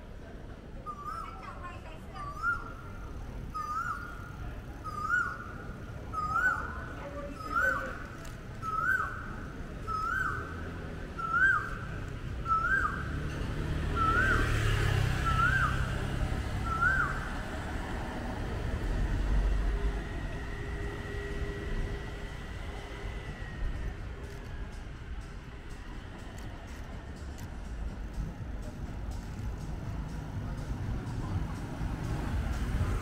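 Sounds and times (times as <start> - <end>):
bird calling: 3.5 - 4.2, 16.6 - 17.4
vehicle passing: 9.9 - 33.0.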